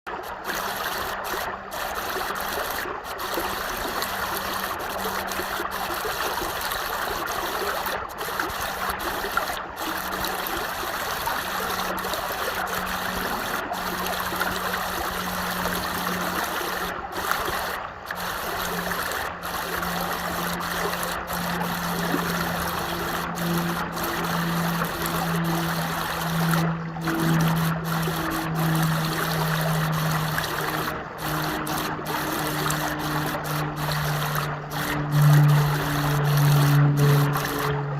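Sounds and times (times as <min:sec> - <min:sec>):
stream water trickling: 0:00.1 - 0:37.9.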